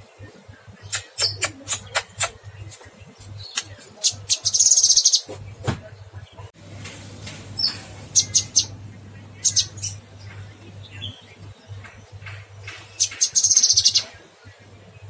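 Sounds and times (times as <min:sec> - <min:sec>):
songbird chirping and trilling: 0:00.0 - 0:15.0
steady low hum: 0:05.4 - 0:15.0.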